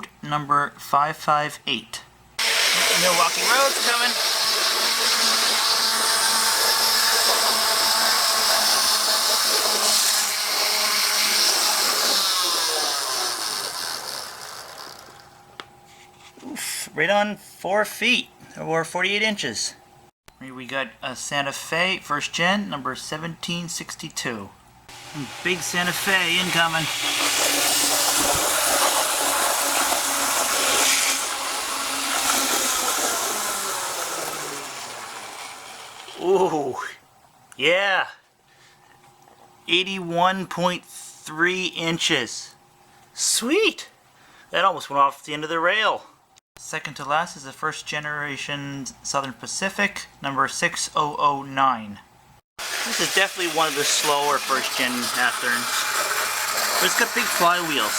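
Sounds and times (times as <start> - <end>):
model train motor whine: 2.4 - 15.4, 24.9 - 36.4, 52.6 - 57.9
wheels hissing on rail: 52.6 - 57.9.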